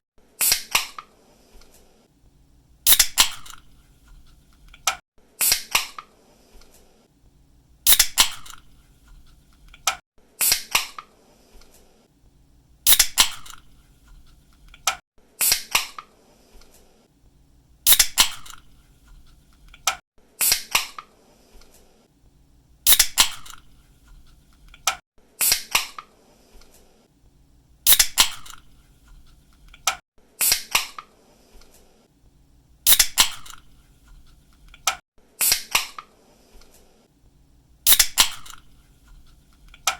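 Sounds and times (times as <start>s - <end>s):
drink can opening: 37.9s - 38.6s.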